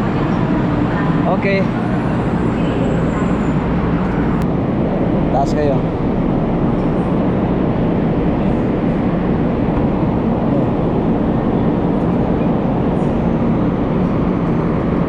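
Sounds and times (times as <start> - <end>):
bullet train rumble: 0.0 - 15.0.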